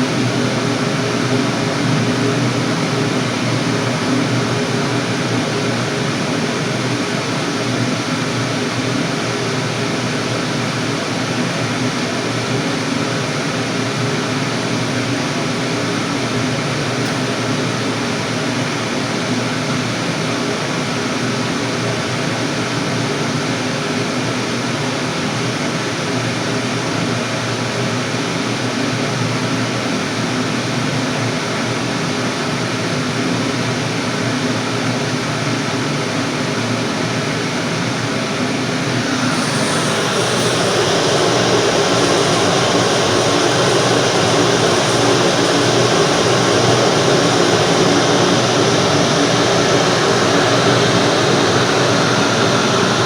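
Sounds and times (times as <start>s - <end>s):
boiler burner roaring: 38.7s - 53.0s
low hum: 38.9s - 53.0s.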